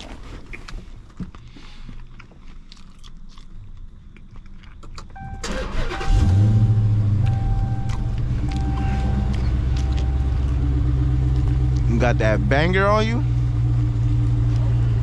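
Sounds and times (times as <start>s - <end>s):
car chime: 5.2s - 11.8s
car engine starting and idling: 5.2s - 15.0s.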